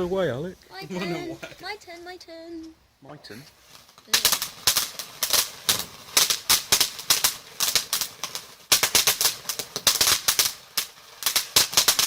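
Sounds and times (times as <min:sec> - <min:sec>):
firework crackling pops: 0:03.5 - 0:12.0.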